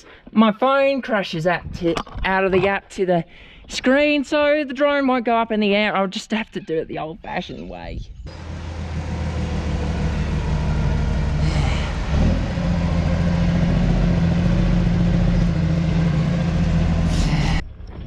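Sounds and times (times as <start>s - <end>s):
truck engine running: 8.3s - 18.0s.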